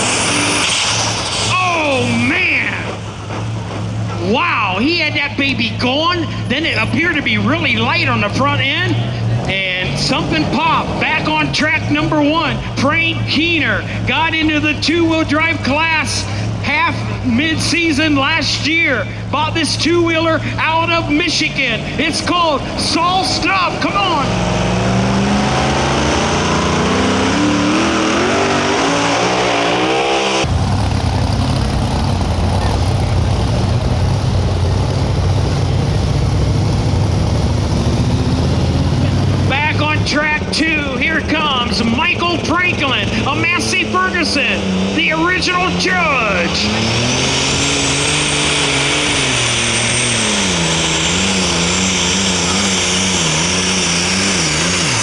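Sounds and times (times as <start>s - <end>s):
thin high whistle: 0.0s - 2.0s
vehicle engine at full throttle: 0.0s - 55.0s.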